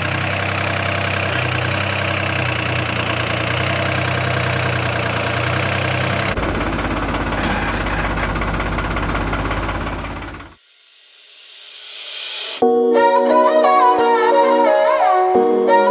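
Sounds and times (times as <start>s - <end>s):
tractor diesel engine running: 0.0s - 10.6s.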